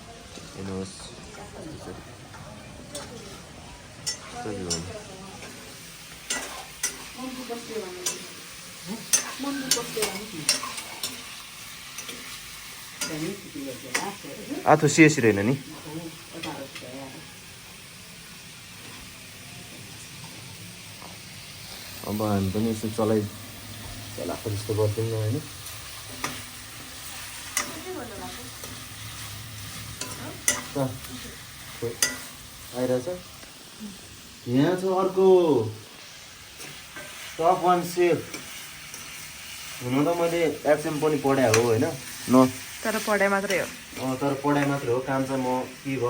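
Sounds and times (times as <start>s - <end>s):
chicken sizzling in hot oil: 2.2s - 46.0s
spoon scraping a pan: 3.0s - 14.2s, 25.6s - 32.5s, 36.0s - 37.4s, 38.2s - 45.6s.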